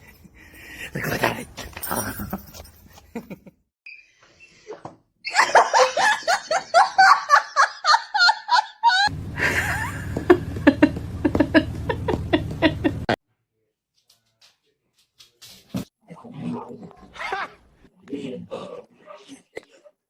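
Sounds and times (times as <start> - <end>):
person laughing: 1.9 - 3.6, 5.3 - 13.2.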